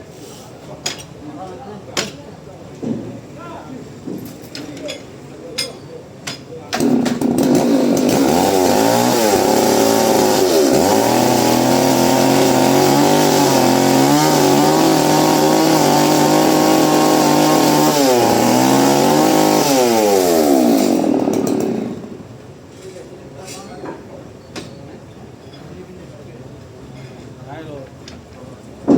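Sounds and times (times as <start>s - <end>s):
chainsaw engine running: 6.8s - 22.3s.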